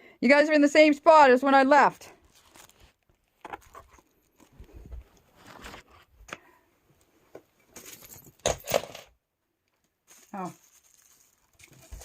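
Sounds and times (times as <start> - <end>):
handling rustles and knocks: 2.3 - 6.4, 7.2 - 9.2, 10.0 - 12.0.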